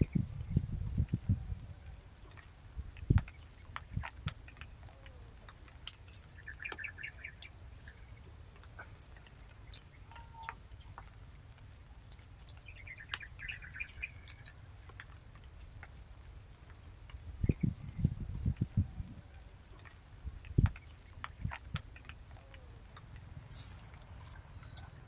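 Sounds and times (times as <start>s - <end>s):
faint low rumble: 0.0s - 25.0s
bird chirping: 6.0s - 8.1s, 12.5s - 14.6s.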